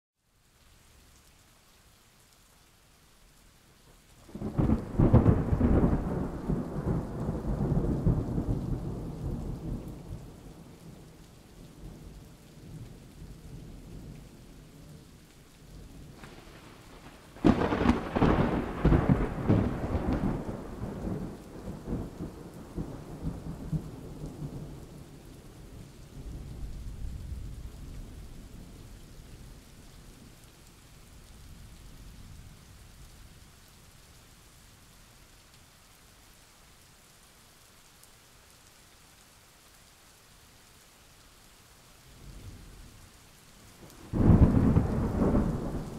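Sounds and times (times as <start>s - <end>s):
steady rain: 0.2s - 45.9s
rumbling thunderclaps: 4.3s - 10.6s, 16.1s - 24.8s, 43.9s - 45.9s.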